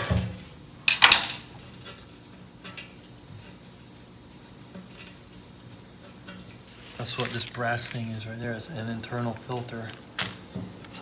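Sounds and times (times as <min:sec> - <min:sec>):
metal parts clinking: 0:09.6 - 0:10.5.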